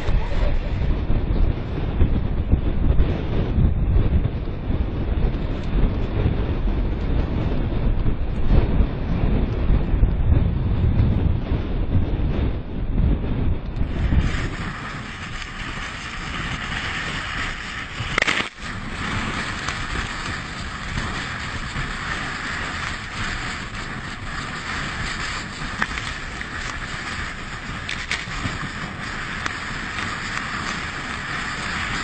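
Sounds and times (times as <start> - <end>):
wind buffeting microphone: 0.0 - 32.0
rough sea: 13.2 - 32.0.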